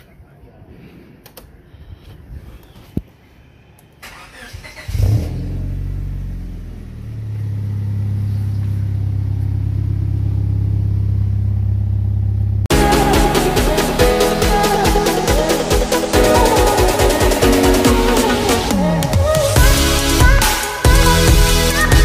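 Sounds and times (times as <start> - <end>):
car engine cranking: 4.0 - 9.5
car engine idling: 4.9 - 13.0.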